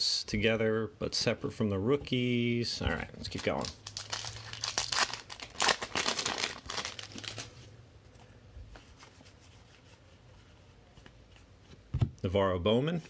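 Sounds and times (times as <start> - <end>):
wrapper crinkling and tearing: 3.3 - 7.6.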